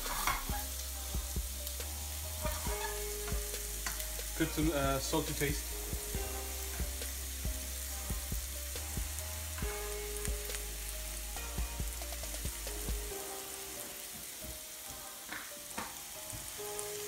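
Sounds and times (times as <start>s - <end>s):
oil spitting crackles: 0.0s - 13.2s
onions sizzling in hot oil: 0.0s - 17.0s.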